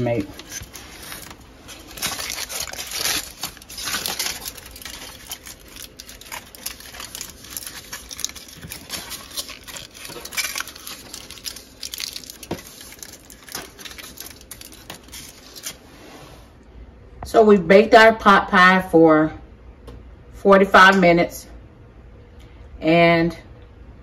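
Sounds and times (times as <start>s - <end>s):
aluminum foil crinkling: 0.0s - 15.8s.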